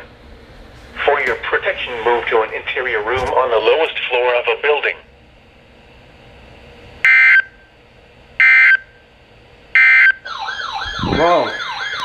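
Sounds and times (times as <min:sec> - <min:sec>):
wavering siren-like alert tone: 0:09.8 - 0:12.0.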